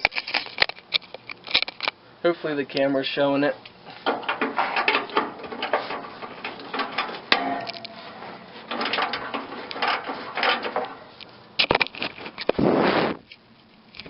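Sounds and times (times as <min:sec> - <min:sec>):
hand tools clicking and scraping metal: 0:03.6 - 0:12.6.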